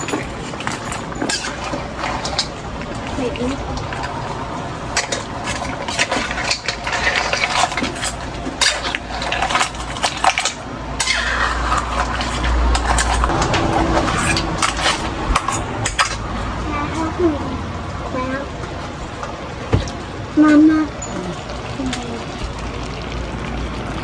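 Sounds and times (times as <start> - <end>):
utensils clinking against dishes: 0.0 - 2.6, 5.0 - 16.2, 20.5 - 22.0.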